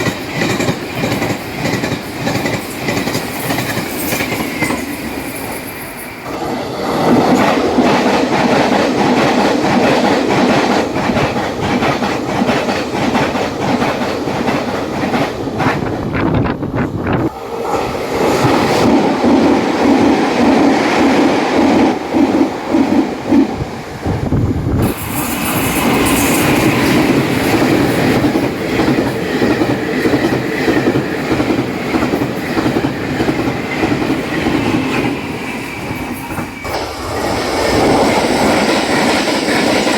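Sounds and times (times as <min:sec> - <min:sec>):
train wheels clattering over rail joints: 0:00.0 - 0:05.6, 0:24.8 - 0:39.9
trains passing at high speed: 0:00.0 - 0:39.9.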